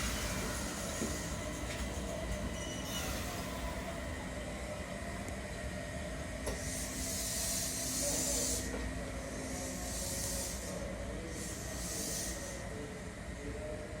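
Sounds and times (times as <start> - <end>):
compressed air hissing from train: 0.0 - 4.0, 6.5 - 12.9.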